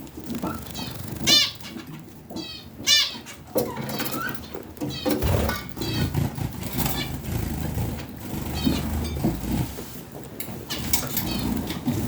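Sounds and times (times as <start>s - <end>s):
budgerigars chattering and chirping: 0.5s - 9.4s, 10.5s - 12.0s.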